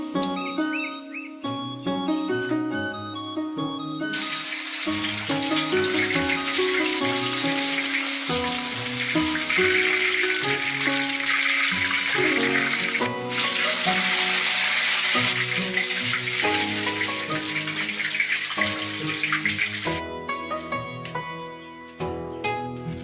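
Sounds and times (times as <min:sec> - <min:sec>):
music with held notes: 0:00.0 - 0:23.0
steady hiss of sizzling: 0:04.2 - 0:20.0.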